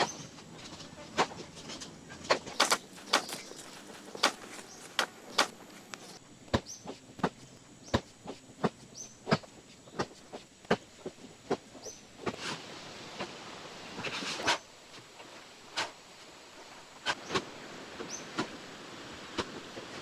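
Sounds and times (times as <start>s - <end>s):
sharp knocks: 2.5s - 6.2s.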